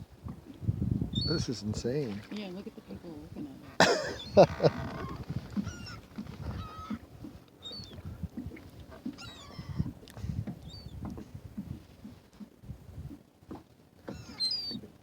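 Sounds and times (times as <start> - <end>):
gulls squawking: 2.6 - 7.0.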